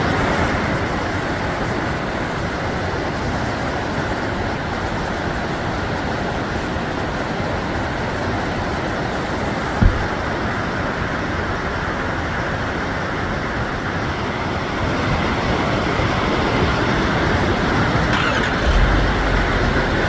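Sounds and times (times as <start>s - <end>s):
short low bump: 9.8s - 10.2s.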